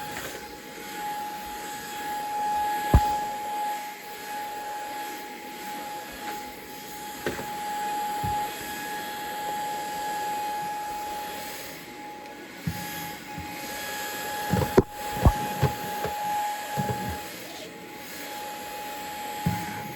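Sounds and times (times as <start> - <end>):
appliance motor humming: 1.4 - 3.6, 6.2 - 17.9.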